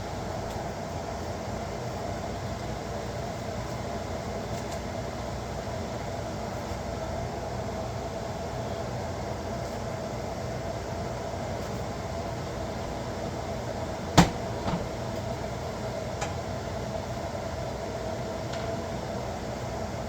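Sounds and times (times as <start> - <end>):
electric fan humming: 10.0 - 20.0.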